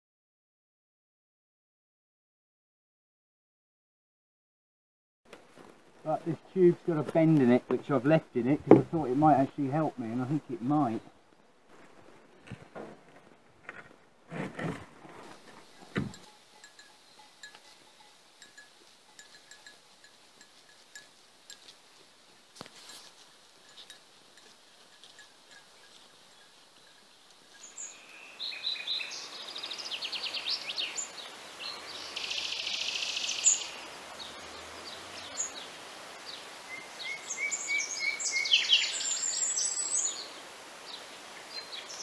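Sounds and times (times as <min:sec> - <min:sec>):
birds trilling and chirping: 0:23.7 - 0:42.0.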